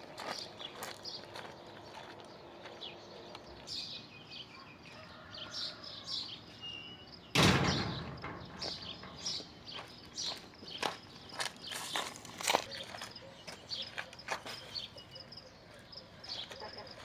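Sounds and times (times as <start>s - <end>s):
birds chirping: 0.0s - 17.0s
footsteps: 7.7s - 14.7s.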